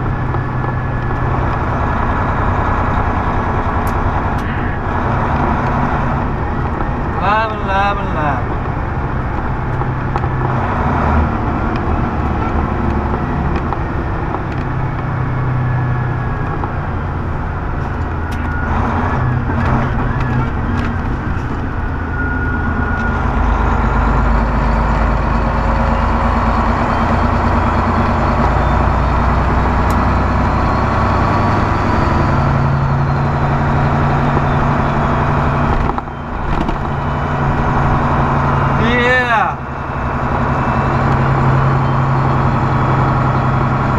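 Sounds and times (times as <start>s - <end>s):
road noise inside cab: 0.0s - 43.9s
truck diesel engine running: 0.0s - 43.9s.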